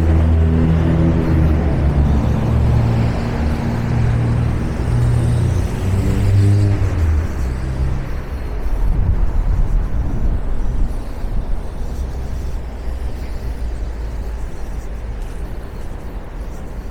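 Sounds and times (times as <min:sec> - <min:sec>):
passing vehicle engines: 0:00.0 - 0:16.9
steady road hum: 0:00.0 - 0:16.9.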